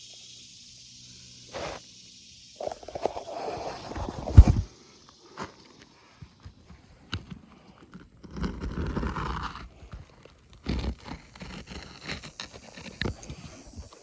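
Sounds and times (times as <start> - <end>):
scraping and tearing shingles: 6.4 - 14.0.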